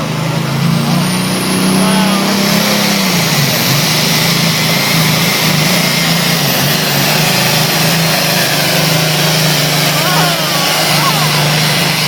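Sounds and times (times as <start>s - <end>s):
tractor engine droning under load: 0.0s - 12.0s.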